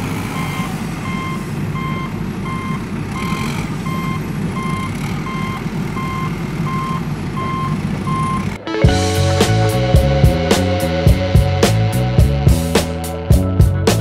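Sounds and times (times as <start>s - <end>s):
truck reversing alarm beeping: 0.0s - 8.6s
low engine rumble: 0.0s - 14.0s.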